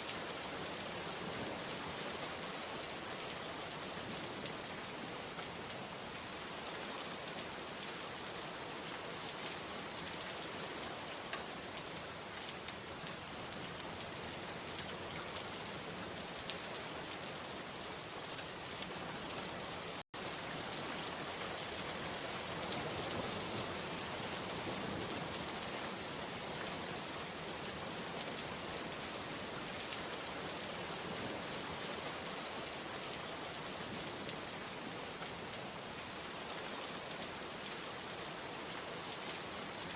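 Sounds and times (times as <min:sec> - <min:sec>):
steady rain hissing: 0:00.0 - 0:39.9
raindrops ticking on a surface: 0:11.1 - 0:15.3.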